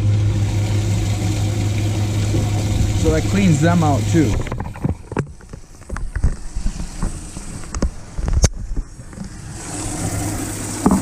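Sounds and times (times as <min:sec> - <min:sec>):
water pump churning water: 0:00.0 - 0:11.0
knocks and clicks: 0:04.3 - 0:09.3.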